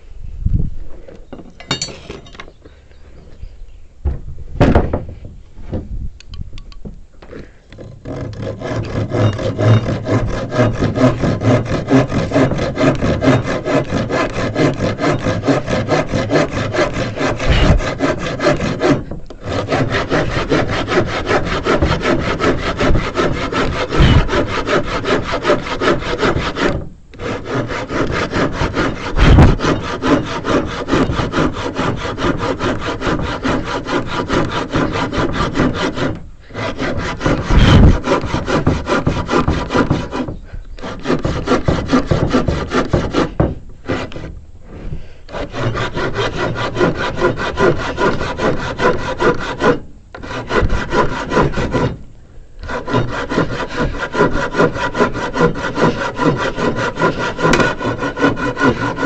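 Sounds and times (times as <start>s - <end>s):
dull thumps: 4.0s - 6.0s, 28.0s - 30.2s
hand saw cutting wood: 7.7s - 52.0s, 52.6s - 59.0s.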